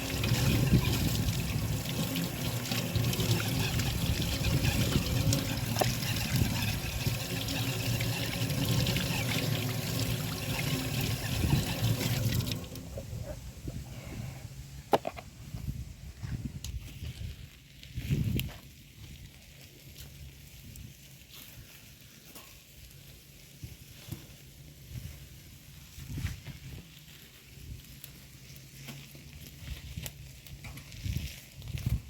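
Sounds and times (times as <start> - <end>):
water pouring in a stream: 0.0 - 13.1.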